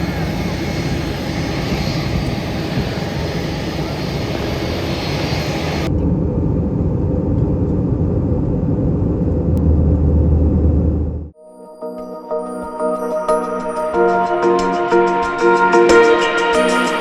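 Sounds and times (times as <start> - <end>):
airliner engines roaring: 0.0 - 11.3
low rumble: 0.0 - 11.3.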